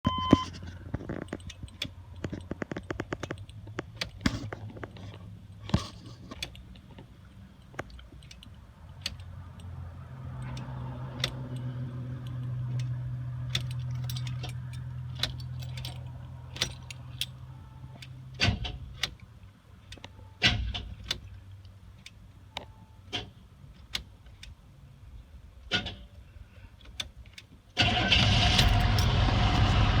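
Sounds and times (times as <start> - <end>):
keys jangling and clicking: 1.0 - 9.7, 13.5 - 17.4
loud engine: 27.8 - 30.0
low hum: 28.0 - 30.0.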